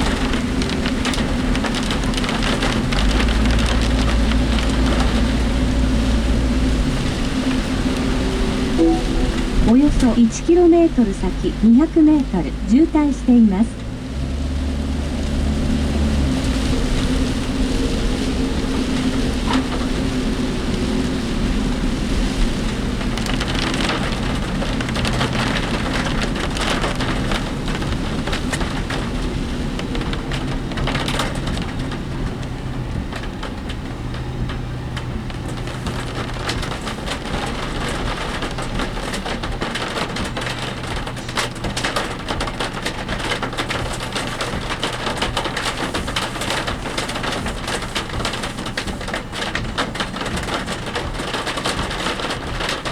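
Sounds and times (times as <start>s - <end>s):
engine hum: 0.0s - 52.9s
heavy rain drumming on vehicle: 0.0s - 52.9s
vehicle rattling: 0.0s - 52.9s.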